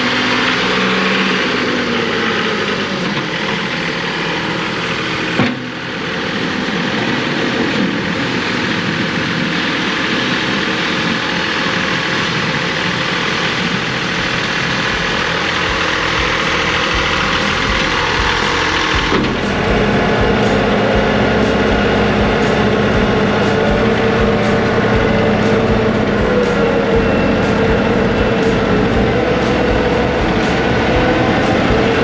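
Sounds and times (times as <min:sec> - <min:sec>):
tractor diesel engine running: 0:00.0 - 0:32.0
deep rumble: 0:12.8 - 0:32.0.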